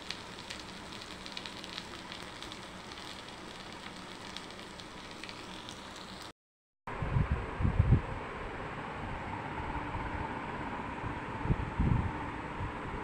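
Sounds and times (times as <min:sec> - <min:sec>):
curry sizzling in a pan: 0:00.0 - 0:06.3.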